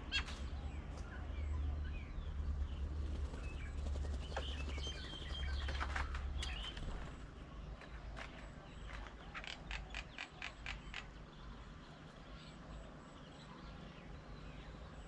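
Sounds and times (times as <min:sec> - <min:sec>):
faint bird calls: 0:07.9 - 0:14.3.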